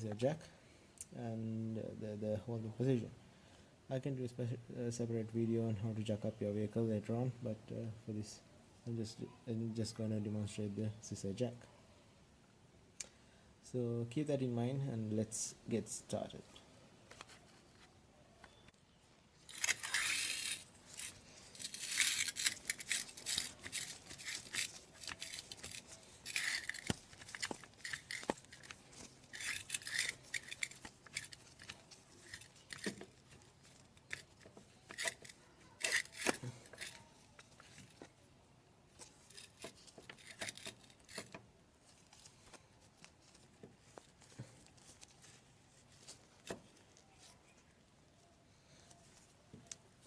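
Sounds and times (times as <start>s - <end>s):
scissor jack and tools scraping: 19.4s - 38.0s, 39.0s - 41.4s.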